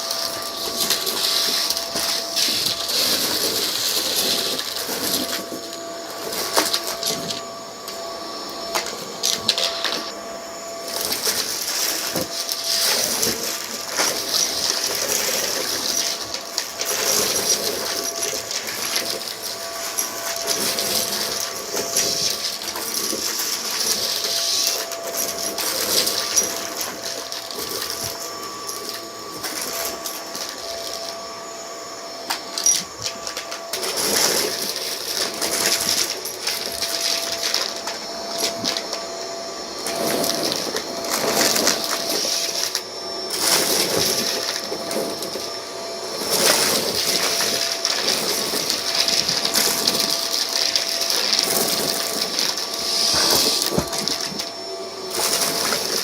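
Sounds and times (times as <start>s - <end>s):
vacuum cleaner motor whine: 0.0s - 56.0s
debris crackling in vacuum: 46.1s - 54.5s.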